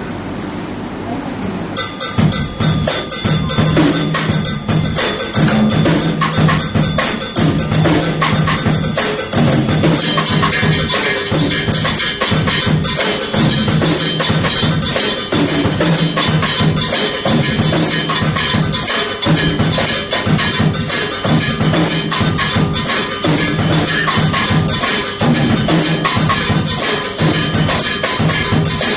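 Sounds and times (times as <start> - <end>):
drum kit playing latin groove: 1.8 - 28.9.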